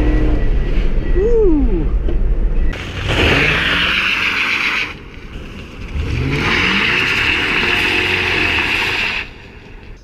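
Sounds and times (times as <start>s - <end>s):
car engine accelerating: 2.7s - 10.0s.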